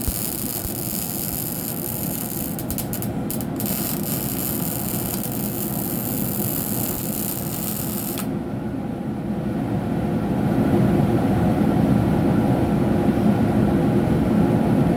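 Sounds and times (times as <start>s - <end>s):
welding arc crackling: 0.0s - 8.3s
low machine hum: 0.0s - 9.0s.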